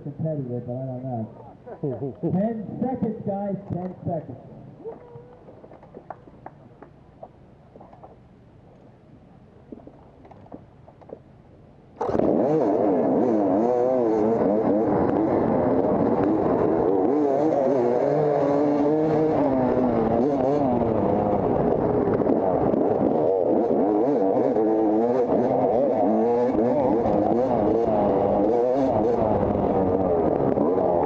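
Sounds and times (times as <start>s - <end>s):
dirt bike engines revving: 0.0s - 4.8s, 12.0s - 31.0s.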